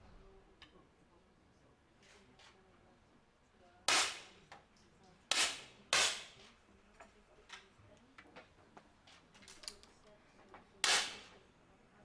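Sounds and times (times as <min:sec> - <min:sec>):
air pistol shots: 0:03.9 - 0:04.3, 0:05.3 - 0:06.4, 0:10.8 - 0:11.3.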